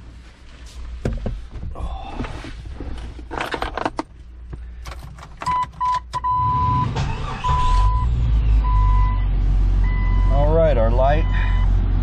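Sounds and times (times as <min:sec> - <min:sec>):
engine cranking and idling: 0:02.8 - 0:08.0.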